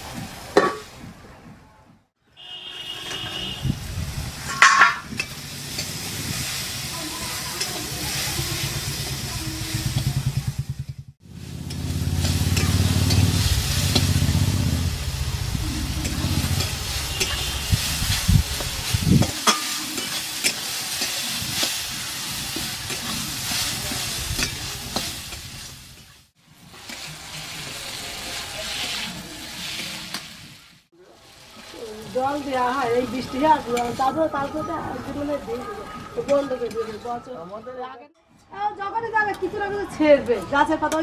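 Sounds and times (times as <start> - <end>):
metal spatula scraping a wok: 2.6 - 3.6, 4.4 - 10.1, 11.3 - 14.2, 15.4 - 30.7
vegetables sizzling in hot oil: 3.0 - 37.0
low rumble: 8.4 - 19.3.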